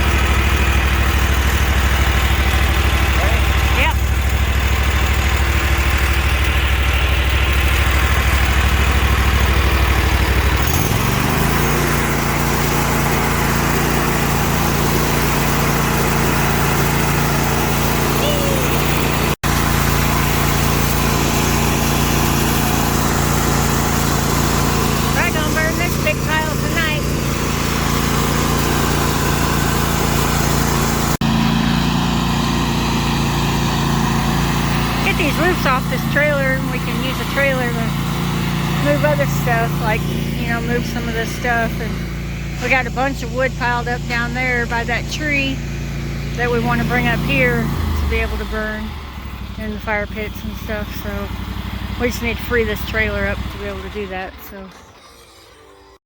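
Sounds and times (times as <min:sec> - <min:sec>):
vehicle engine revving from idle: 0:00.0 - 0:55.3.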